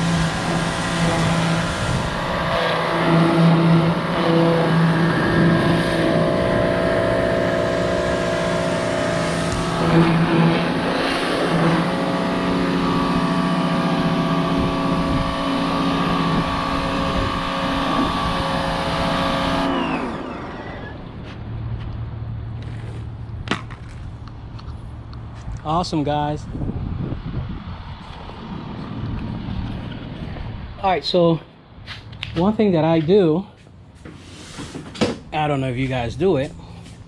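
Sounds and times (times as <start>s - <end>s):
pressure washer motor humming: 0.0s - 21.2s.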